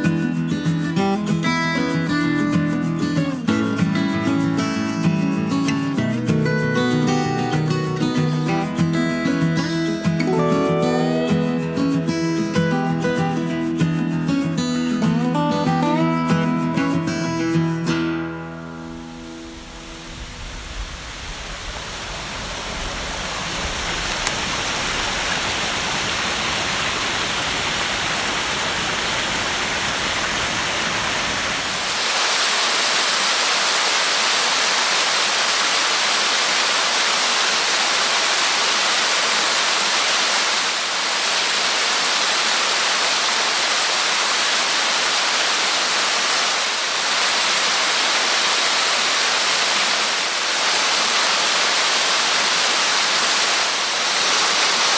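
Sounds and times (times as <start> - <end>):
waterfall rushing: 9.9 - 13.1, 18.6 - 54.9
low water rumble: 18.8 - 32.0.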